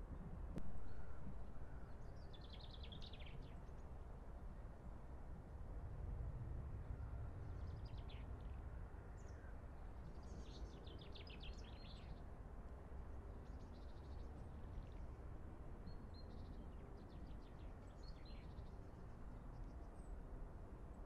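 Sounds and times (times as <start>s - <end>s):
steady low rumble: 0.0s - 2.2s.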